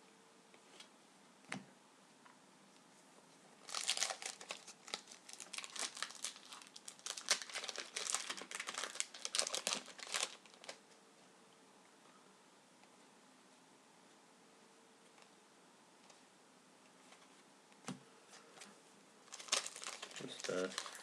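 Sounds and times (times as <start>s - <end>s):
wrapper tearing and crinkling: 3.6s - 10.8s, 19.3s - 21.0s.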